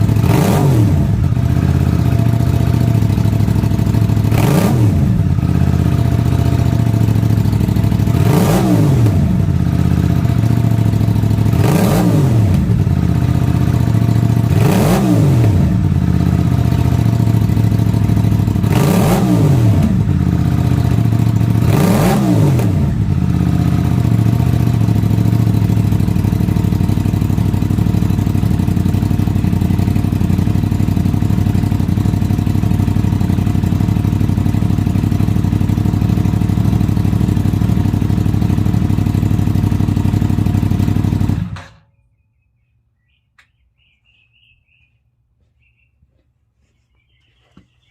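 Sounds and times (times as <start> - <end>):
motorcycle engine revving and idling: 0.0 - 42.0.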